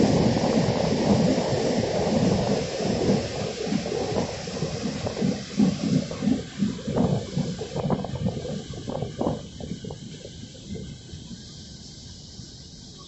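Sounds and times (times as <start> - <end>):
train running rumble: 0.0 - 13.0.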